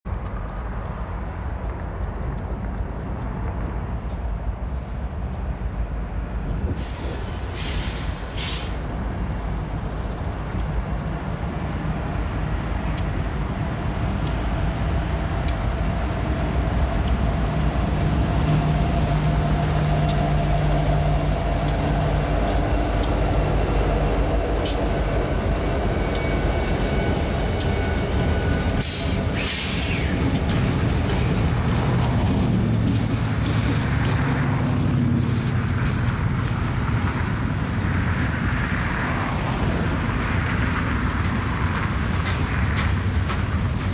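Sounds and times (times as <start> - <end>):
rail noise rumble: 0.0 - 43.9
locomotive engine hum: 0.1 - 43.9
hiss bursts: 6.8 - 8.8, 28.8 - 30.1.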